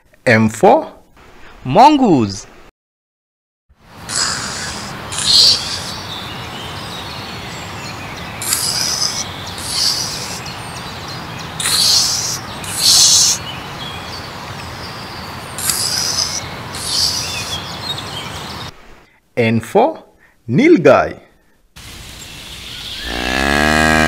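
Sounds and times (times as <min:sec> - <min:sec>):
steady background hiss: 0:00.1 - 0:02.7, 0:03.8 - 0:23.3
meerkats calling: 0:04.1 - 0:06.2, 0:08.4 - 0:10.5, 0:11.5 - 0:13.4, 0:15.5 - 0:17.6.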